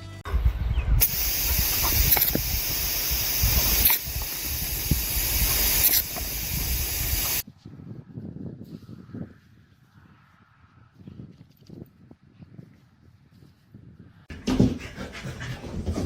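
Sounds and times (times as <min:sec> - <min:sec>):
loud hissing noise: 0:01.0 - 0:07.4.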